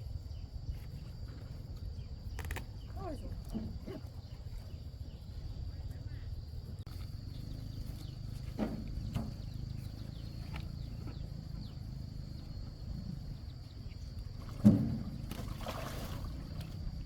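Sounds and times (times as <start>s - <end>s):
steady low rumble: 4.2s - 15.6s.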